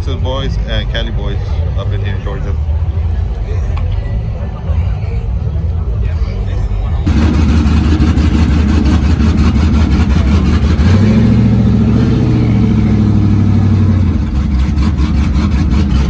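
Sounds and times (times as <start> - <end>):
truck engine revving: 7.0 - 16.0.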